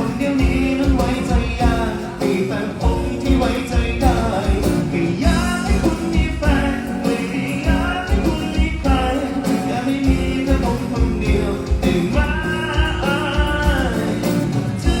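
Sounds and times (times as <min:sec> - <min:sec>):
person singing folk song: 0:00.0 - 0:15.0
strong bass beat: 0:02.8 - 0:06.9.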